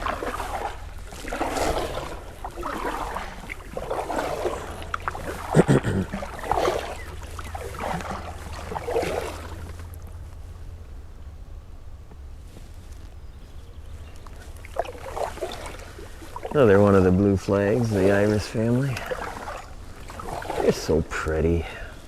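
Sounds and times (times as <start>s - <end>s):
paddle splashing through water: 0.0s - 10.7s, 13.9s - 22.0s.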